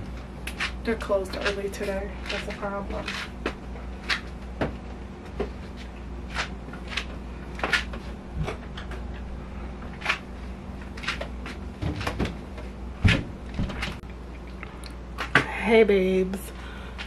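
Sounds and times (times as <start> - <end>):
low steady fridge hum: 0.0 - 17.0
items knocking and clicking in fridge: 0.5 - 5.7, 6.4 - 9.3, 9.9 - 14.0.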